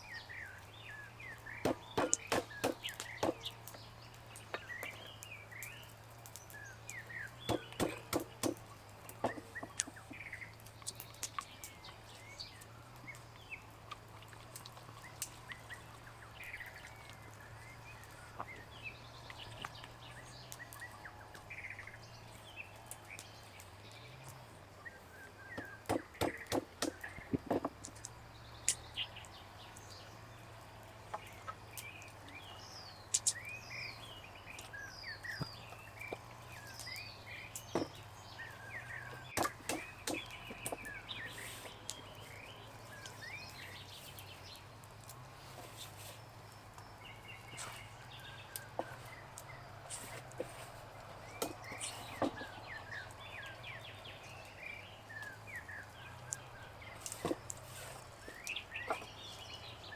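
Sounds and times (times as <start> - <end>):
small birds chirping: 0.0 - 59.9
sharp knocks: 1.6 - 3.5, 7.5 - 8.6, 25.6 - 27.7.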